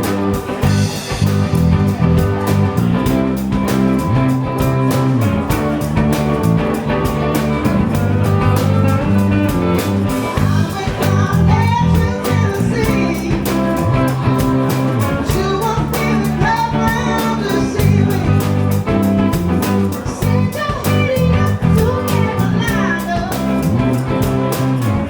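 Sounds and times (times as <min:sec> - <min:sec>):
bass guitar: 0:00.0 - 0:25.0
drums beating: 0:00.0 - 0:25.0
guitar: 0:00.0 - 0:25.0
person singing: 0:06.9 - 0:24.6.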